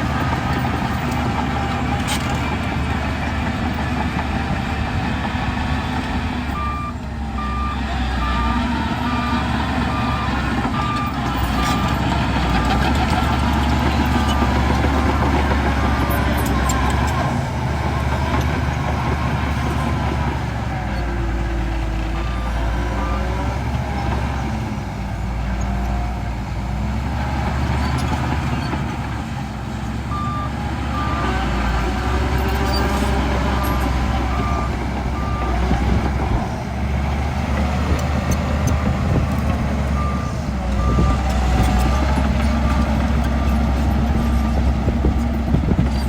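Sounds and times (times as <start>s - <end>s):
heavy diesel machinery running: 0.0s - 46.0s.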